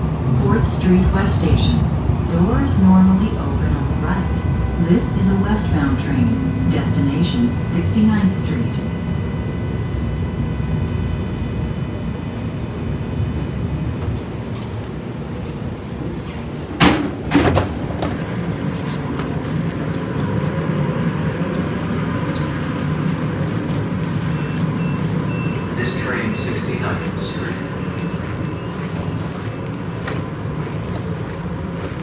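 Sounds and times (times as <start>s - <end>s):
train car rumble: 0.0s - 32.0s
loud clunks: 16.7s - 18.2s.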